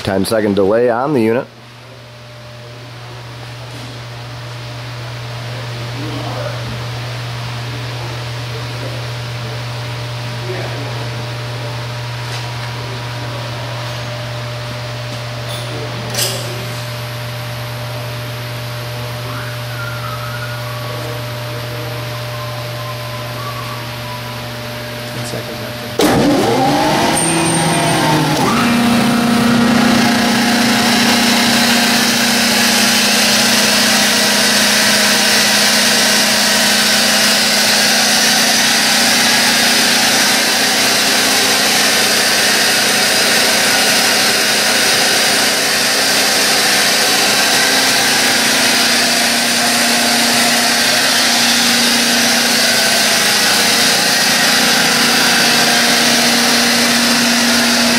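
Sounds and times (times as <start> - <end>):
compressor air noise: 2.9 - 57.9
air compressor motor spinning up: 16.4 - 57.9.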